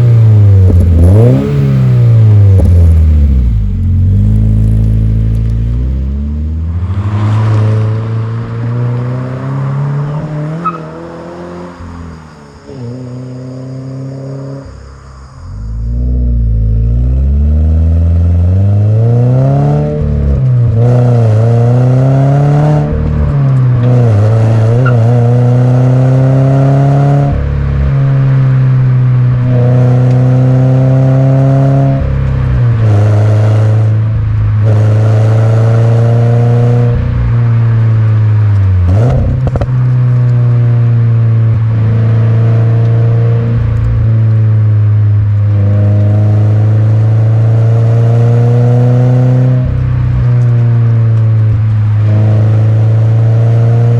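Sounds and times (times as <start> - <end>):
car engine revving hard: 0.0 - 11.9, 16.2 - 37.2, 45.2 - 53.9.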